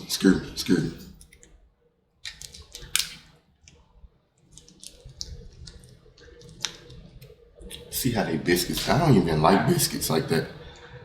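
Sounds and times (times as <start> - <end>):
person chewing: 4.4 - 7.9
mouth clicks and smacks: 4.4 - 8.0.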